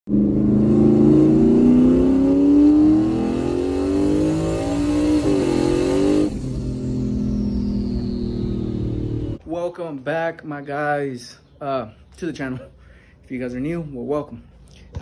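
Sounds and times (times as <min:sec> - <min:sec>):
car engine accelerating: 0:00.0 - 0:09.4
thin high turbo whistle: 0:06.2 - 0:09.4.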